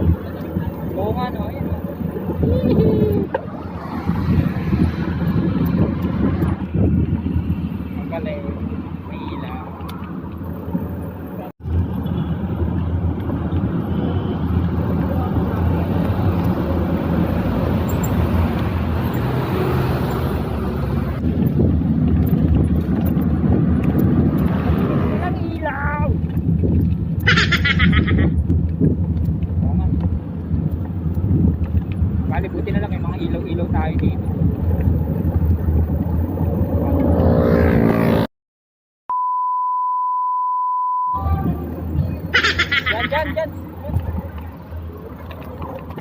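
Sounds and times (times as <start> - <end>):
road traffic noise: 0.0 - 38.3, 41.1 - 46.0
wind rumbling on microphone: 0.0 - 38.3, 41.2 - 46.0
electronic beep: 39.1 - 41.4.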